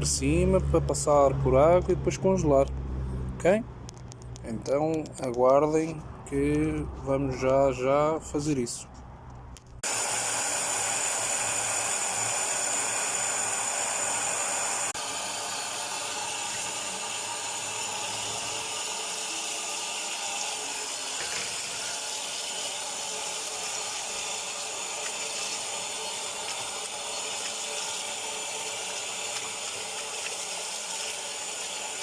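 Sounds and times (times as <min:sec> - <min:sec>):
water running from a tap: 0:09.8 - 0:32.0.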